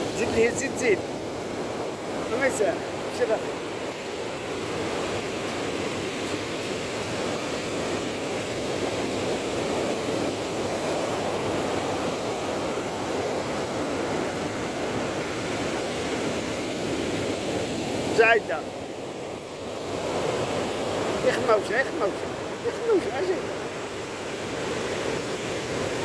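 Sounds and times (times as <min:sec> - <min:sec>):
waves breaking: 0:00.0 - 0:26.0.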